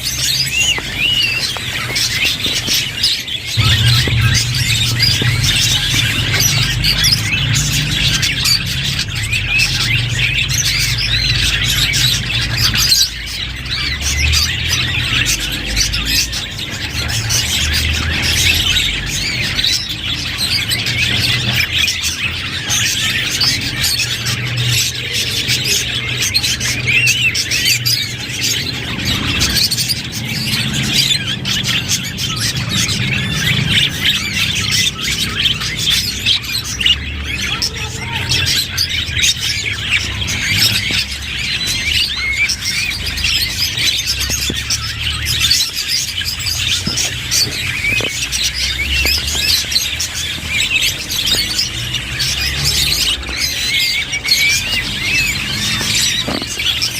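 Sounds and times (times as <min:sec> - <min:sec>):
budgerigars chirping and warbling: 0:00.0 - 0:56.9
low steady hum: 0:03.6 - 0:08.8.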